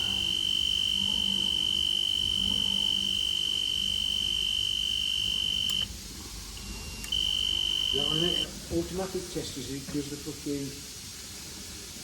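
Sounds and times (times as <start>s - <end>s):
alarm high-pitched beep: 0.0s - 5.9s, 6.6s - 8.5s.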